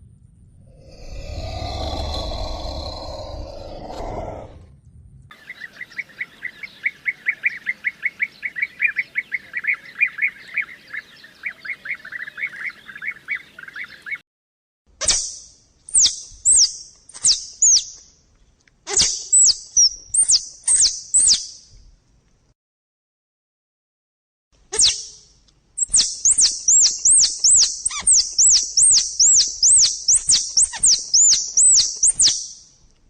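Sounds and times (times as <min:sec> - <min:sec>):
downward-sliding whistled calls: 0:15.0 - 0:18.0, 0:18.9 - 0:21.7, 0:24.8 - 0:25.2, 0:25.8 - 0:32.7
short chirping animal calls: 0:15.0 - 0:18.0, 0:18.9 - 0:21.6, 0:24.7 - 0:32.6.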